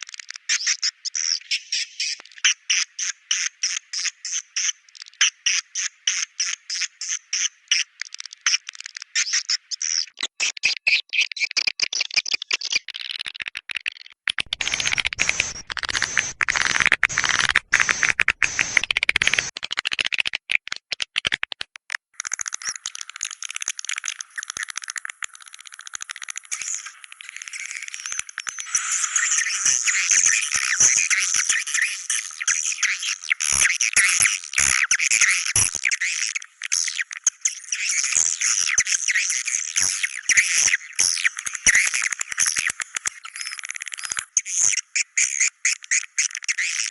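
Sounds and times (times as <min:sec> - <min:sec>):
swiftlets twittering: 0:14.5 - 0:19.5.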